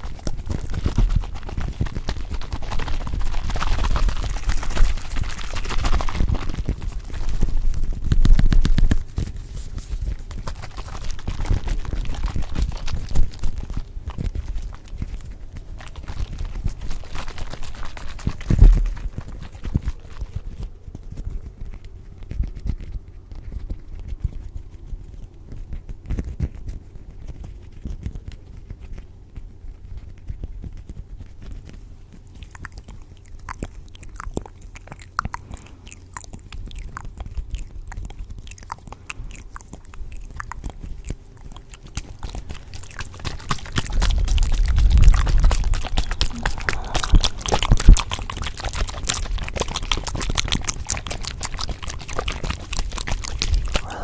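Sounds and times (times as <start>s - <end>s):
crunchy clicks and crackles: 0.0s - 54.0s
faint low hum: 0.0s - 54.0s
low rumble: 43.8s - 50.0s.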